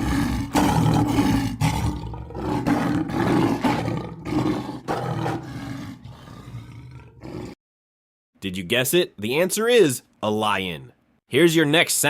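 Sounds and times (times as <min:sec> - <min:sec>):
lion roaring: 0:00.0 - 0:07.6.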